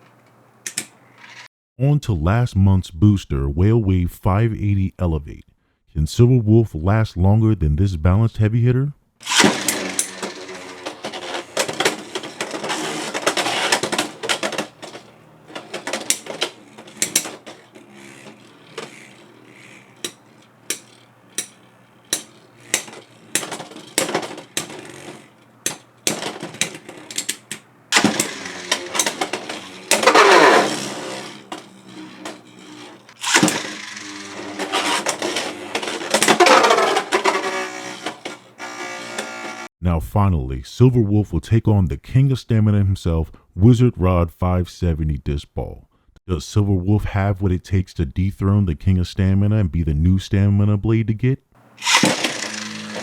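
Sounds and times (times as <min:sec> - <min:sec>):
spinning tops clicking and knocking: 0:00.6 - 0:01.5, 0:09.2 - 0:39.7, 0:51.8 - 0:53.0.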